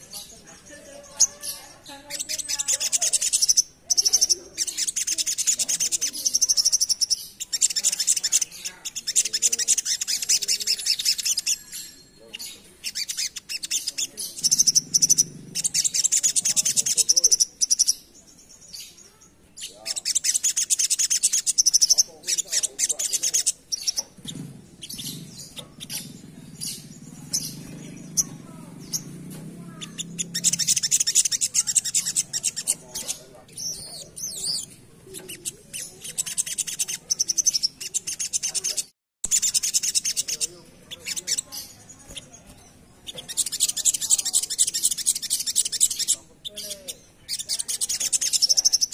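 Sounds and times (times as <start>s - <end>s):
bird chattering song: 0.0s - 48.9s.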